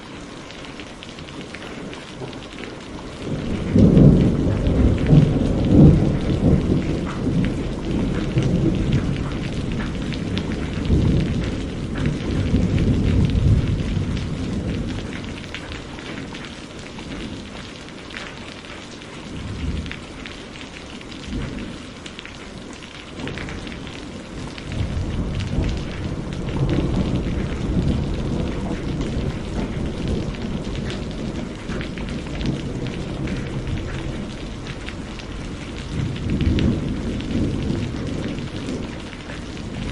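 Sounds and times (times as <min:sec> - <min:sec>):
steady rain: 0:00.0 - 0:39.9
rolling thunder: 0:01.4 - 0:16.4, 0:23.2 - 0:39.9.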